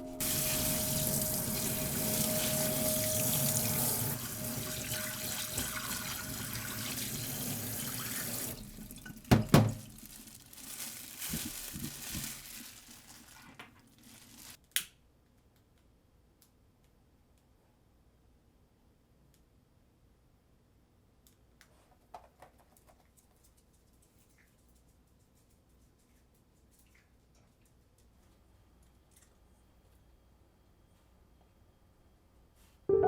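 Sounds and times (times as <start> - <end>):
tap water running into sink: 0.2 - 10.0.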